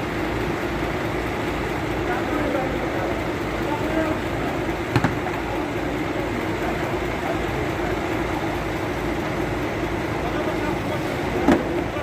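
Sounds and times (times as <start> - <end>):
truck engine running: 0.0 - 12.0
sharp knocks: 4.9 - 5.2.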